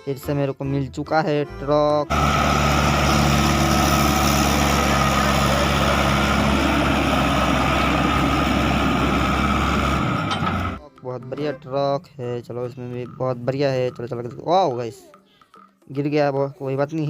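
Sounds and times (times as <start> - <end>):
truck engine idling: 2.1 - 10.8.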